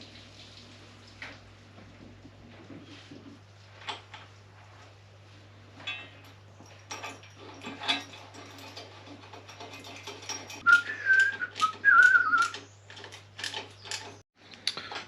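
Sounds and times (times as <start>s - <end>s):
small metal parts clicking: 5.9s - 15.0s
person whistling a tune: 10.6s - 12.5s.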